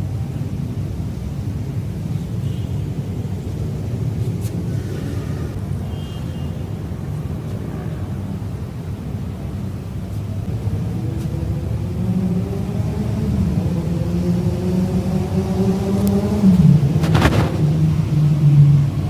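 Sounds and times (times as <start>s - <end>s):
motor vehicle engine rumble: 6.9s - 19.0s.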